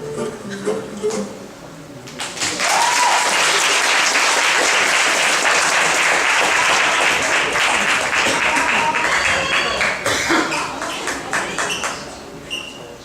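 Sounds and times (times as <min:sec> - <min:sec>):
audience applause: 0:02.2 - 0:12.1.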